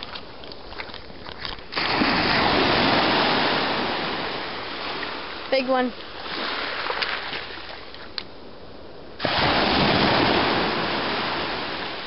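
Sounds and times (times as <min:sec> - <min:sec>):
wave breaking: 0:01.7 - 0:07.9, 0:09.2 - 0:12.0
surf washing on beach: 0:01.7 - 0:12.0.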